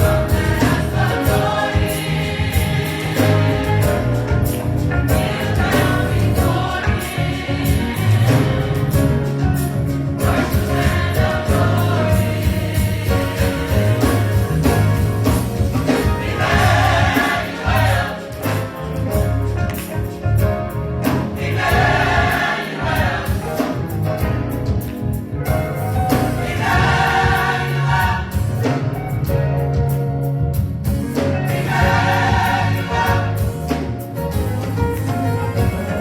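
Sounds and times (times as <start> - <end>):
gospel choir singing: 0.0 - 24.4, 25.5 - 29.8, 31.1 - 36.0
instrumental accompaniment: 0.0 - 36.0.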